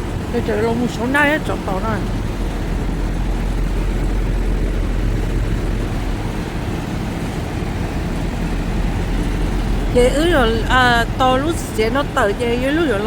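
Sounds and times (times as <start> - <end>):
semi-truck engine rumbling: 0.0 - 13.0.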